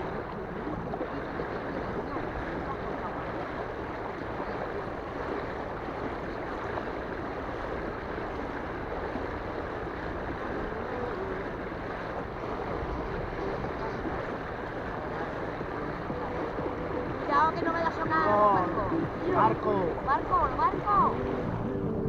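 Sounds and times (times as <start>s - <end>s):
sea water rushing: 0.0s - 22.0s.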